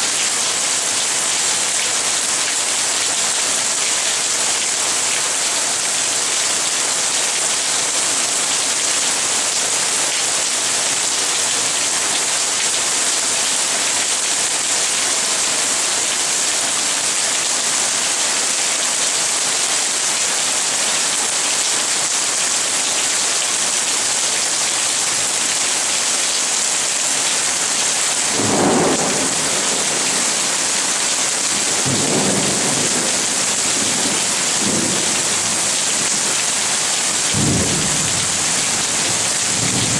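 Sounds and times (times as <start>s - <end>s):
rain falling: 0.0s - 39.9s
thunder rumbling: 28.4s - 30.5s.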